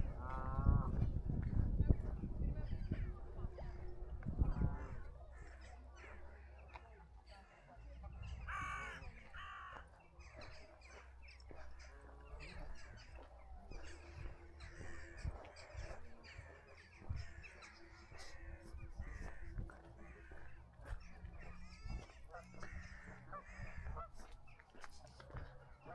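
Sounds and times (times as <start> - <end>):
quieter bird calls: 2.5 - 25.9
harsh caw-like bird calls: 8.2 - 24.4.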